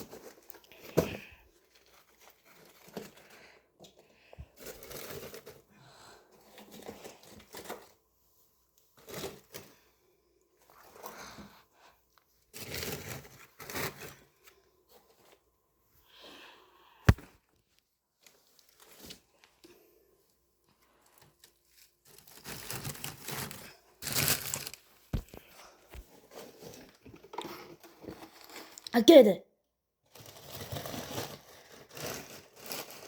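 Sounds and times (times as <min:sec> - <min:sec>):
paper crumpling and rustling: 0:01.6 - 0:03.5, 0:20.9 - 0:28.8, 0:30.1 - 0:33.0.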